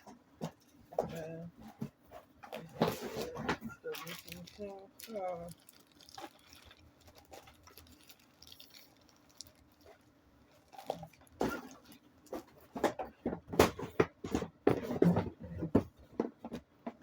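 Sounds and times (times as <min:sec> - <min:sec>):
objects knocking and clicking: 0:10.8 - 0:17.0.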